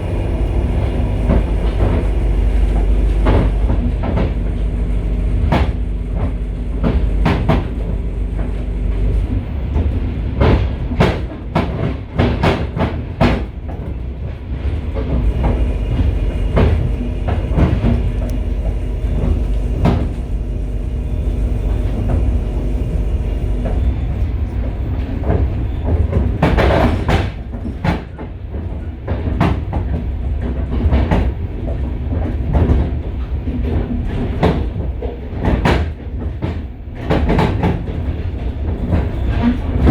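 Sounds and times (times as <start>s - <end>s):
loud train clanks: 0.0s - 39.9s
train low rumble: 0.0s - 39.9s
wheels clacking over rail joints: 5.4s - 23.9s.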